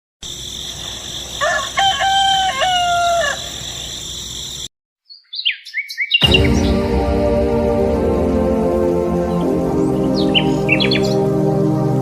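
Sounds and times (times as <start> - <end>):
rooster crowing: 1.3 - 3.8
bird chirps: 2.4 - 6.8, 9.3 - 11.2.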